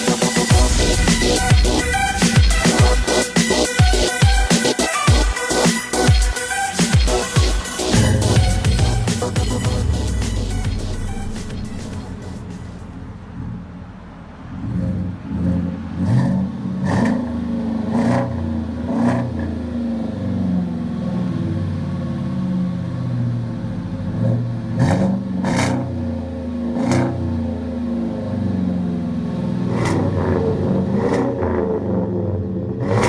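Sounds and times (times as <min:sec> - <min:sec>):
pickup engine idling and revving: 0:00.0 - 0:33.0.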